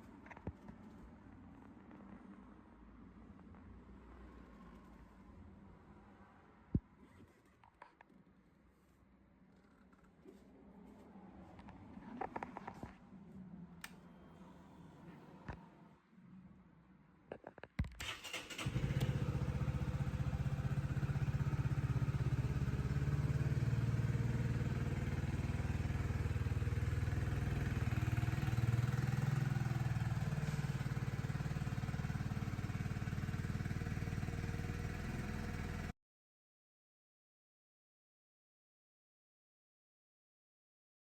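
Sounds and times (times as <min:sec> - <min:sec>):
motorcycle engine cranking clicks: 0:18.0 - 0:19.2
motorcycle engine idling: 0:18.1 - 0:35.9.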